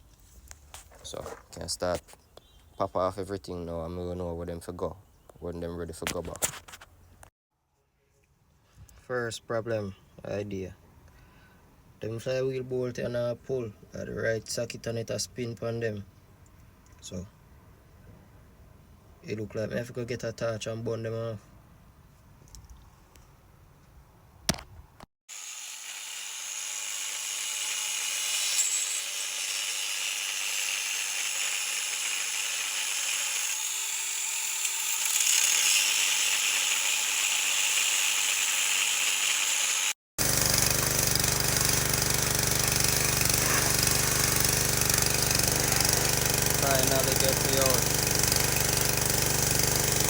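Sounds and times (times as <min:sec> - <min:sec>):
cutting torch hissing: 0:42.5 - 0:44.7.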